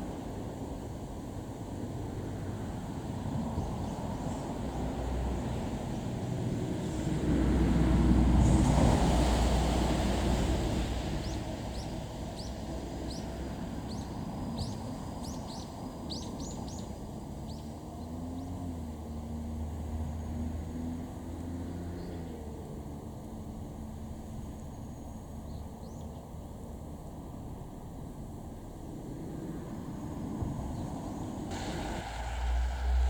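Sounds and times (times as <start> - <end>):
diesel railcar engine: 0.0 - 21.3, 22.0 - 33.0
birds chirping: 11.2 - 19.2.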